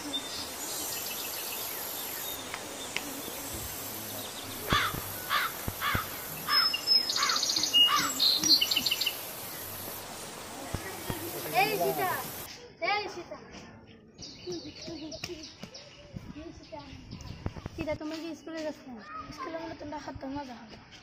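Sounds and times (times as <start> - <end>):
birds calling: 0.0 - 12.5
insect drone: 0.0 - 12.5.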